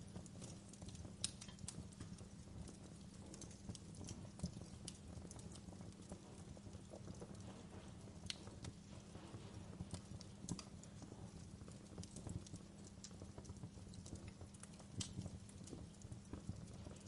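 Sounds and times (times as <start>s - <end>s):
campfire crackling: 0.0s - 17.0s
low steady burning fire: 0.0s - 17.0s.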